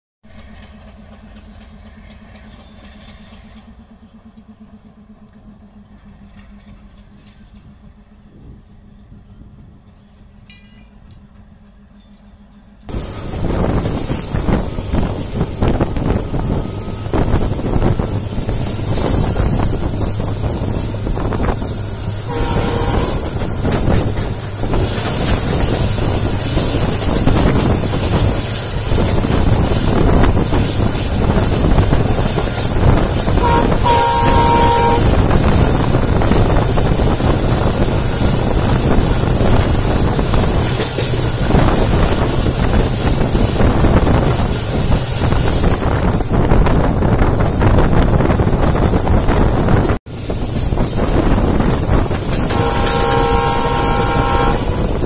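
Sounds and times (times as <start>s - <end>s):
passing train coaches: 0.2s - 55.0s
wheel-on-rail noise: 10.0s - 55.0s
rushing wind: 12.9s - 55.0s
train horn blasts: 21.1s - 24.8s, 33.2s - 35.6s, 52.4s - 55.0s.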